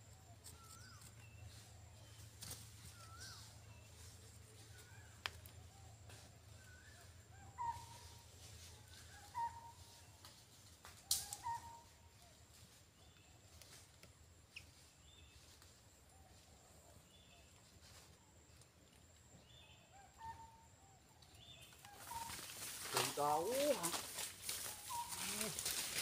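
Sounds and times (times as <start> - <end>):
faint bird calls: 0.0 - 13.8, 19.3 - 26.0.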